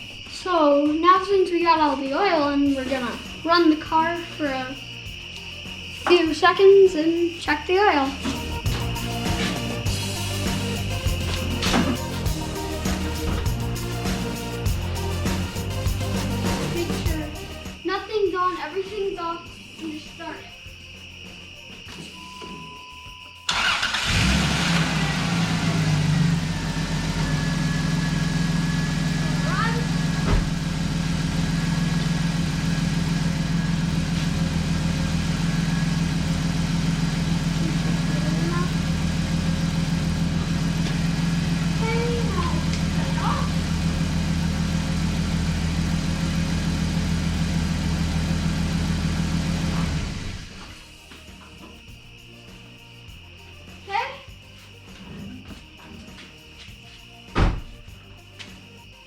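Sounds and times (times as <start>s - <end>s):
car engine starting and idling: 7.9s - 17.6s, 23.5s - 50.8s.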